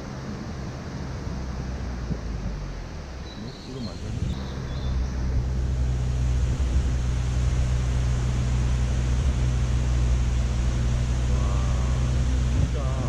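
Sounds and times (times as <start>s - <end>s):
car engine and road rumble: 0.0s - 13.0s
even hiss: 3.2s - 13.0s.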